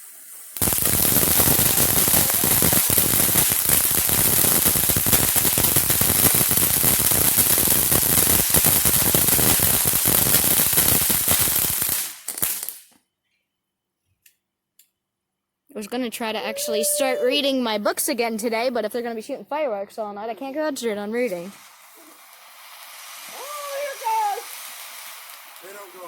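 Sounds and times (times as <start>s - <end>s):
firework fountain hissing and crackling: 0.0s - 12.9s, 20.5s - 26.0s.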